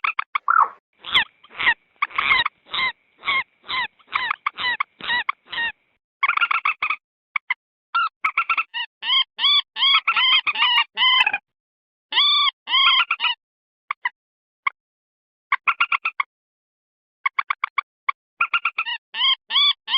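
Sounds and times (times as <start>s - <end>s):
moorhen clucking calls: 0.4s - 7.0s.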